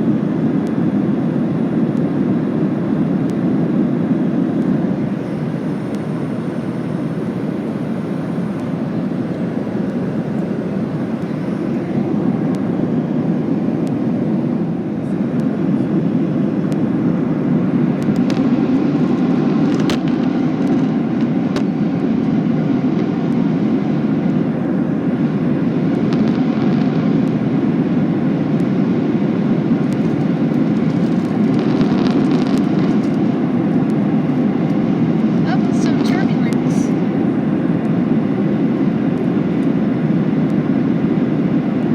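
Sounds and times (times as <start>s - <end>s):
airplane cabin roar: 0.0s - 41.9s.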